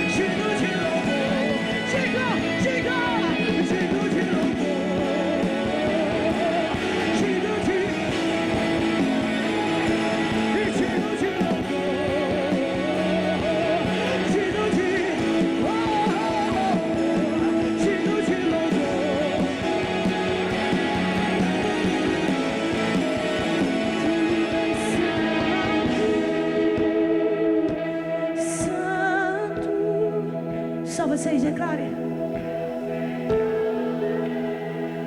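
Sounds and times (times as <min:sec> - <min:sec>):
guitar and band accompaniment: 0:00.0 - 0:35.0
woman singing with vibrato: 0:28.4 - 0:32.4.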